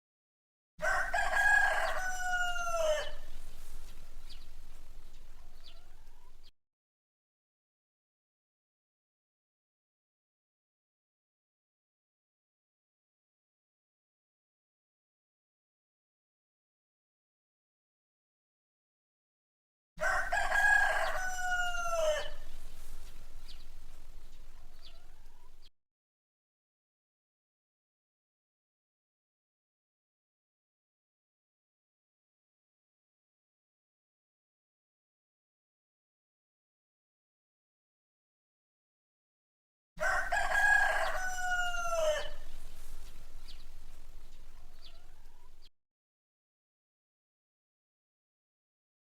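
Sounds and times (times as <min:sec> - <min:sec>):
rooster crowing: 0:00.8 - 0:06.4, 0:20.0 - 0:25.7, 0:40.0 - 0:45.7
low background noise: 0:01.0 - 0:06.5, 0:20.1 - 0:25.7, 0:40.0 - 0:45.7
small birds chirping: 0:01.3 - 0:06.5, 0:20.4 - 0:25.7, 0:40.5 - 0:45.7.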